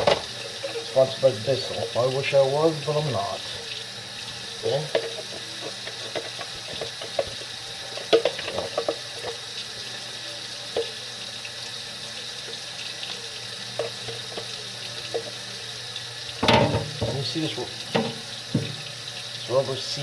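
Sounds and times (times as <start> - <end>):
tap water running into sink: 0.0 - 20.0
plastic parts knocking and clicking: 4.9 - 9.4.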